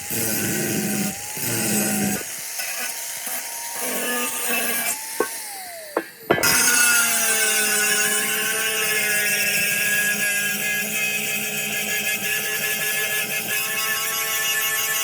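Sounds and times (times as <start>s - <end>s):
power tool motor humming: 0.0s - 15.0s.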